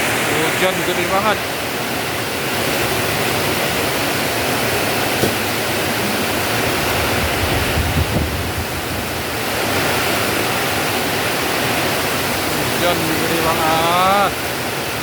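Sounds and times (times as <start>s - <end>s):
heavy rain pouring: 0.0s - 15.0s
wind gusts on microphone: 1.6s - 15.0s
short knock: 5.2s - 5.6s.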